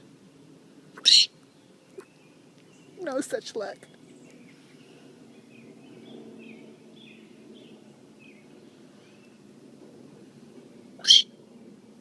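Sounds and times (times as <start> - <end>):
songbird chirping: 1.0 - 9.5.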